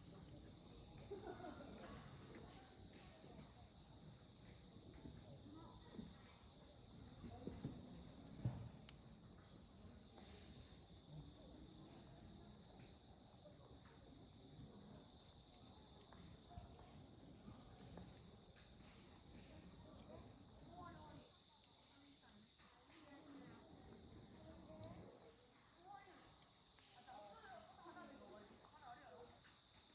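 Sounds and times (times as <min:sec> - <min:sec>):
night insects chirping: 0:00.0 - 0:29.9
campfire crackling: 0:06.8 - 0:14.3, 0:15.2 - 0:20.6.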